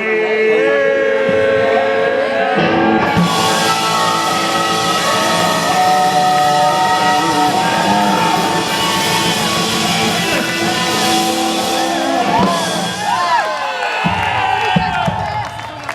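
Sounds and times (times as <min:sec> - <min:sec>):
person singing: 0:00.0 - 0:13.0
electric guitar: 0:02.3 - 0:13.4
live rock band: 0:02.6 - 0:14.4.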